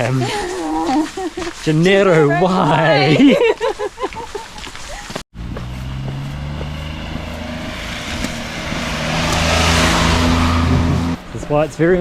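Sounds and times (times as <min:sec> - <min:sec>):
road and tyre noise: 0:04.4 - 0:12.0
vehicle engine running: 0:05.3 - 0:11.9.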